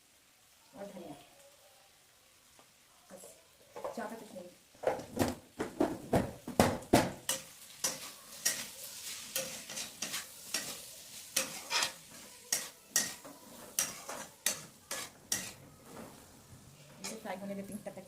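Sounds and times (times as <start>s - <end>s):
vegetables sizzling: 0.0s - 18.0s
spatula scraping a frying pan: 7.2s - 16.3s, 17.0s - 17.3s.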